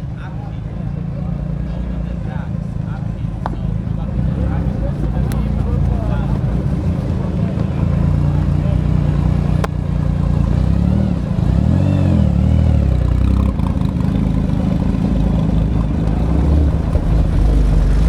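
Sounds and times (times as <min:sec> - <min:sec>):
car engine revving: 0:04.0 - 0:18.0.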